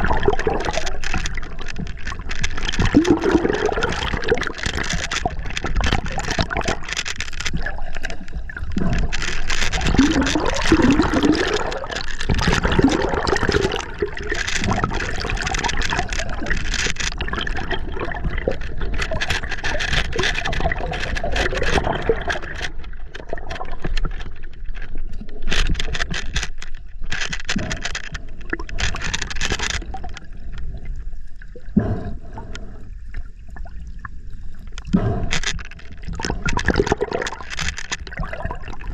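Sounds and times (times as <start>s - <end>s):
river water gurgling and splashing: 0.0s - 24.2s.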